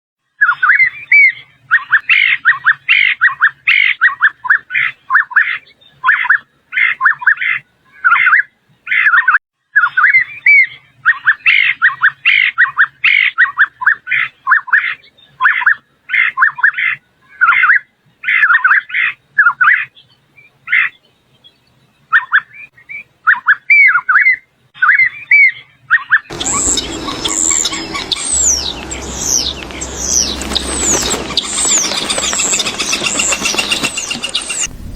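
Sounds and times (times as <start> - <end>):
bird singing sliding chirps: 26.2 - 34.9.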